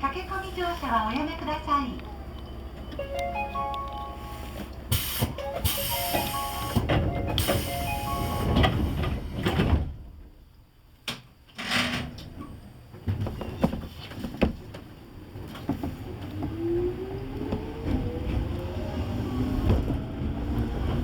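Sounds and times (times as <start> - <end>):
train door chime: 2.4 - 9.4
sliding doors closing: 4.1 - 10.2, 11.6 - 21.0
air hiss: 4.9 - 6.8.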